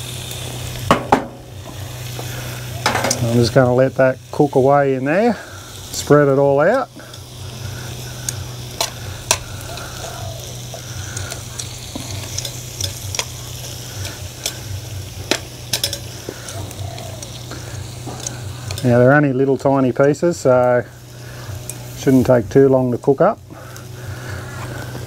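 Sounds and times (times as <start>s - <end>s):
steaks sizzling on grill: 0.0s - 25.0s
vegetables sizzling in a metal tray: 0.0s - 25.0s
metal tongs scraping a tray: 15.3s - 16.2s.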